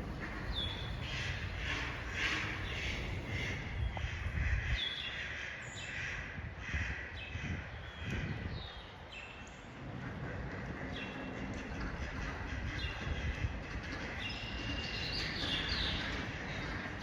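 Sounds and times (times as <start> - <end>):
low rumble: 0.0 - 4.5
birds calling: 0.0 - 6.0.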